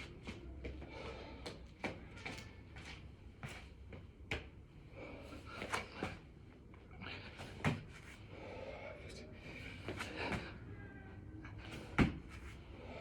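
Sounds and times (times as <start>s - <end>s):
hands and feet thudding on floor: 11.7s - 12.5s.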